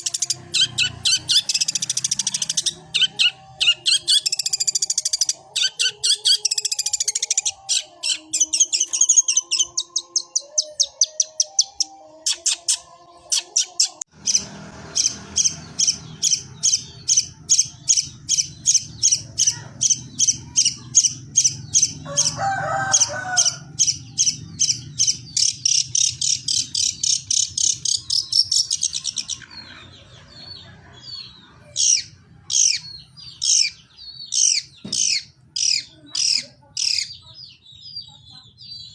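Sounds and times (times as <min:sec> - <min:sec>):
bird singing high chirps: 0:00.0 - 0:22.4.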